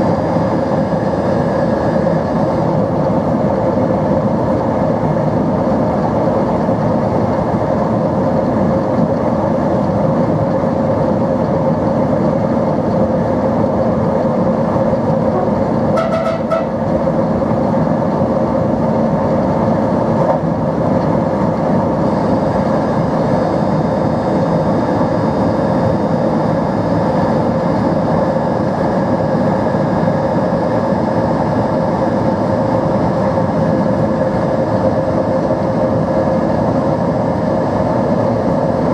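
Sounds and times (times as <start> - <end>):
train motors droning: 11.4 - 25.1
brief short sound: 15.4 - 16.9.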